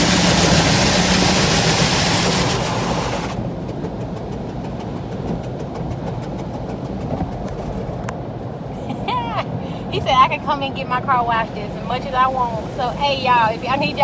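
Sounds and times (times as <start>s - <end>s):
car wash spray hiss: 0.0s - 3.5s, 11.5s - 14.0s
low machinery rumble: 0.0s - 14.0s.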